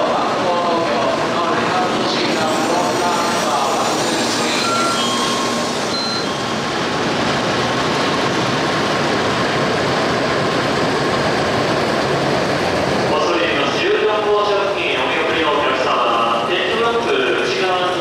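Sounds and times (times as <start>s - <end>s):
train rushing past: 0.0s - 18.0s.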